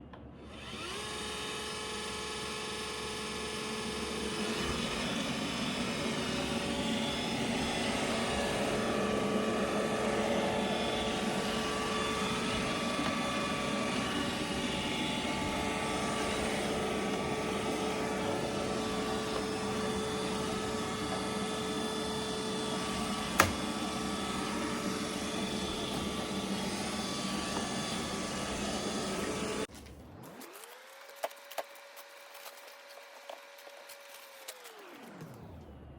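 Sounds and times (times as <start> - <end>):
robot vacuum cleaner whirring: 0.4 - 35.9
sharp knock: 23.4 - 23.7.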